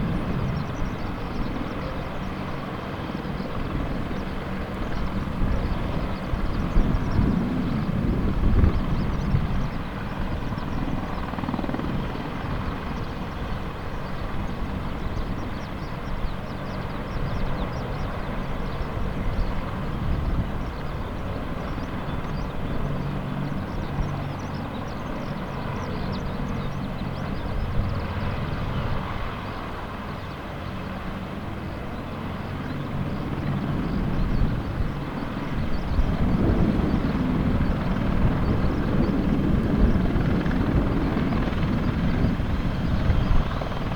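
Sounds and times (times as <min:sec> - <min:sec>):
helicopter engines and rotor drone: 0:00.0 - 0:43.9.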